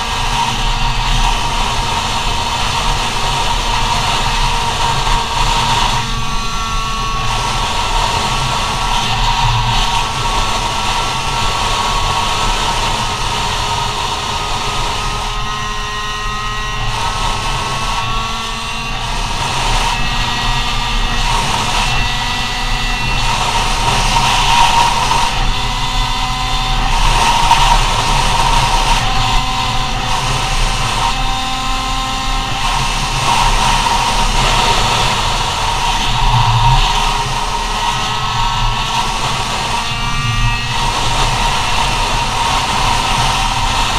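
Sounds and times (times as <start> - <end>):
scooter engine at high revs: 0.0 - 43.9
low rumble: 15.8 - 43.9.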